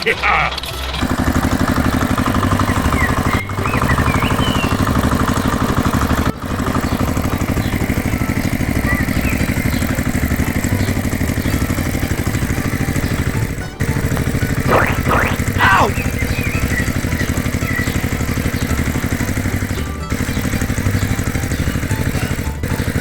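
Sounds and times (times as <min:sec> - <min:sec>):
small engine chugging: 0:00.5 - 0:23.0.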